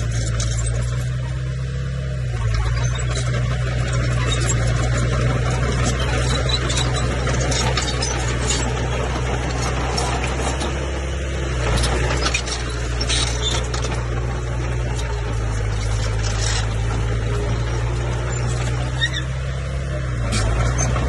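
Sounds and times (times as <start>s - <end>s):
bulldozer diesel engine: 0.0s - 21.0s.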